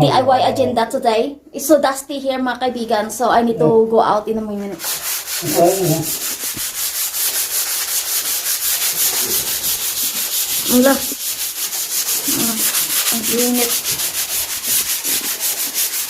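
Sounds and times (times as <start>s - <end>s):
sanding plaster: 4.6s - 16.0s.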